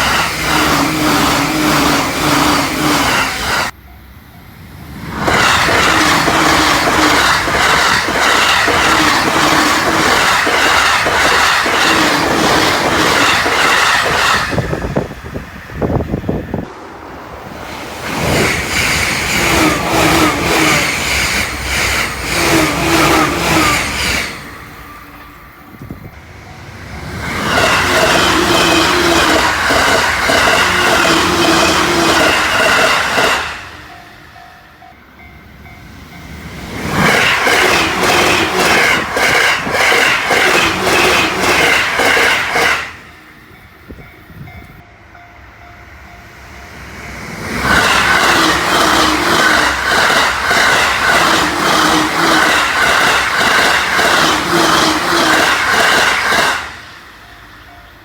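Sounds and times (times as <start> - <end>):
train rushing past: 0.0 - 58.0
wheels clacking over rail joints: 5.0 - 16.0, 26.5 - 34.0, 35.6 - 43.1, 47.2 - 56.9.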